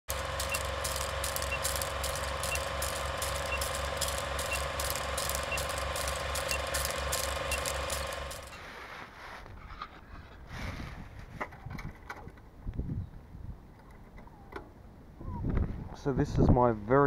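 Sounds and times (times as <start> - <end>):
motorcycle engine idling: 0.1 - 8.5.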